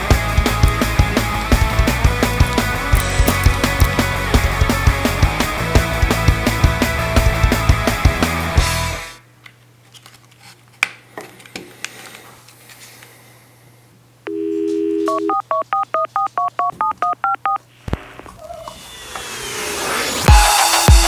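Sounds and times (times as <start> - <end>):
rising whoosh: 18.6 - 20.3.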